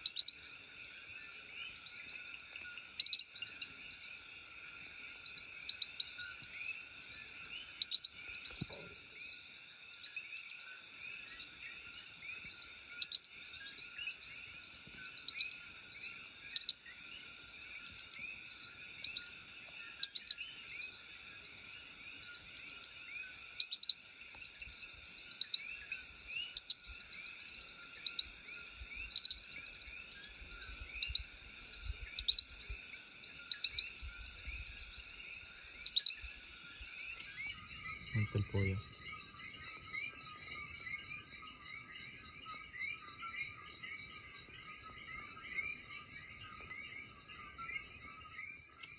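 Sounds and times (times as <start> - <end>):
frogs chorus calling: 0.0 - 48.9
nearby frog call: 35.7 - 48.5.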